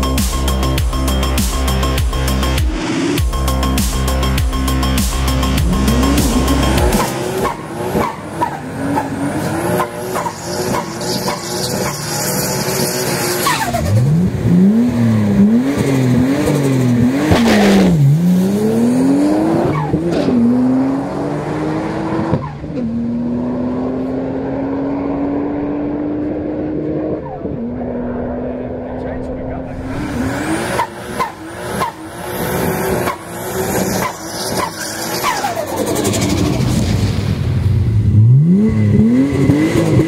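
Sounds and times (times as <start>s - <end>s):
race car engine revving: 4.0s - 40.0s
tyres screeching: 5.2s - 14.0s, 29.8s - 36.7s.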